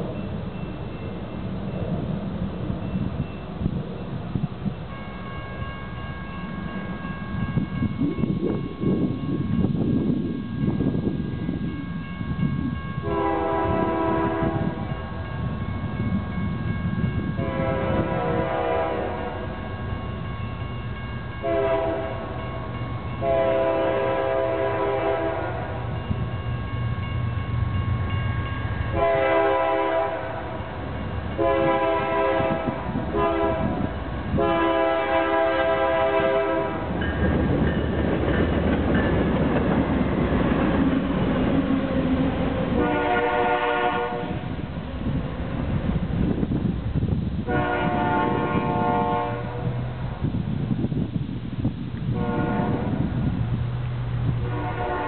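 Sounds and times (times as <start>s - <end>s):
locomotive engines rumbling: 0.0s - 55.0s
train wheel noise: 0.0s - 55.0s
locomotive air horn: 13.0s - 15.0s, 17.4s - 19.6s, 21.4s - 22.4s, 23.2s - 25.9s, 28.9s - 30.6s, 31.4s - 36.9s, 42.8s - 44.5s, 47.5s - 50.0s, 52.1s - 53.1s, 54.4s - 55.0s.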